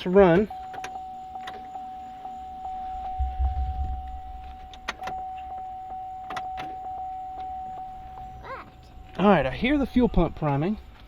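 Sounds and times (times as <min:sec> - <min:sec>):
fuel pump whining: 0:00.0 - 0:11.0
brief low rumble: 0:03.2 - 0:04.6.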